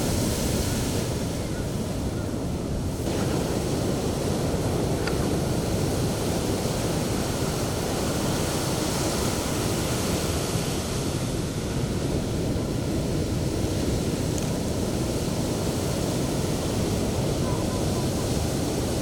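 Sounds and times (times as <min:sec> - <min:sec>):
sea waves breaking on beach: 0:00.0 - 0:19.0.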